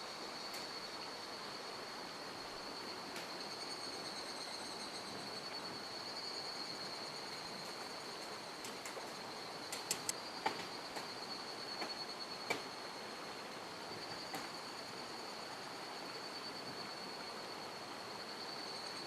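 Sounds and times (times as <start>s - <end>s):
high-pitched insect drone: 2.7s - 8.2s
sharp snaps and clicks: 9.7s - 11.1s.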